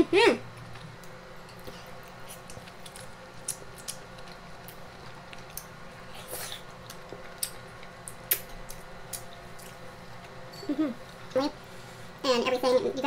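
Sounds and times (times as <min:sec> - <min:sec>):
person chewing with wet clicks: 0:00.5 - 0:10.4.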